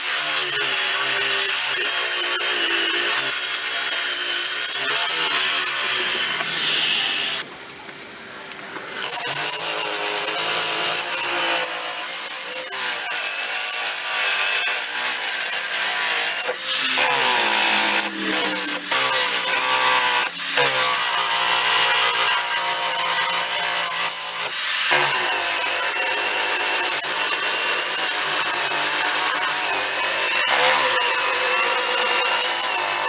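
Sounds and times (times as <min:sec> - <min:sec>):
electric buffer grinding filler: 0:14.3 - 0:23.2.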